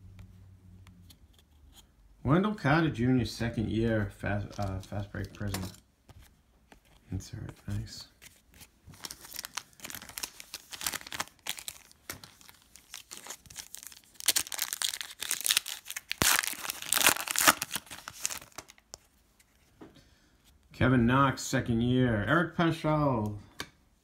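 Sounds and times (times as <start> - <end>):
packaging crinkling: 8.3 - 19.0.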